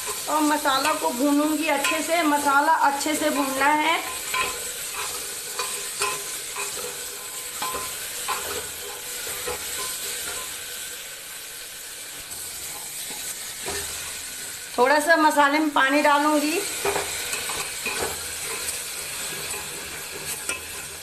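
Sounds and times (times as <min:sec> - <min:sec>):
spice paste sizzling in hot oil: 0:00.0 - 0:21.0
spoon scraping a pot: 0:03.1 - 0:10.6, 0:16.8 - 0:21.0.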